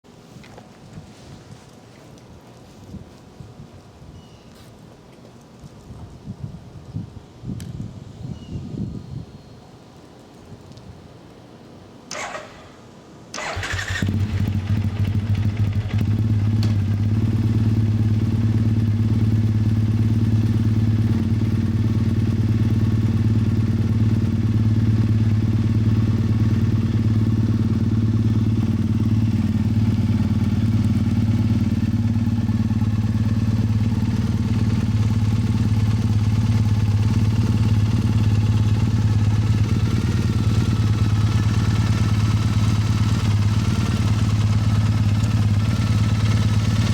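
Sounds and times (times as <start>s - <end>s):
engine cranking: 12.1s - 12.7s, 13.4s - 15.8s
motorcycle engine idling: 13.4s - 46.9s.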